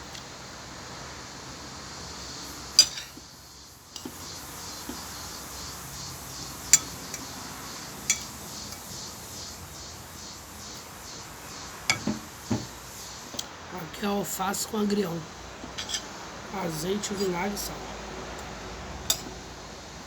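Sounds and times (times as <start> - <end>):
faint background noise: 0.0 - 20.0
cutlery clinking on a plate: 2.8 - 3.2, 6.7 - 7.3, 8.1 - 8.8, 11.9 - 12.6, 15.6 - 16.1, 19.0 - 19.3.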